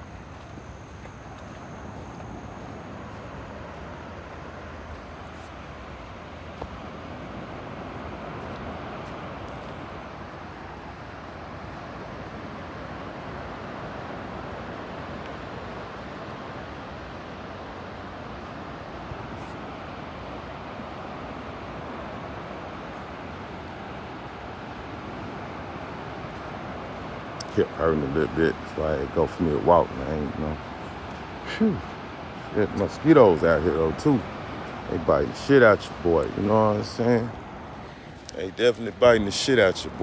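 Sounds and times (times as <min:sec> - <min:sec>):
ocean surf roaring: 0:00.0 - 0:40.0.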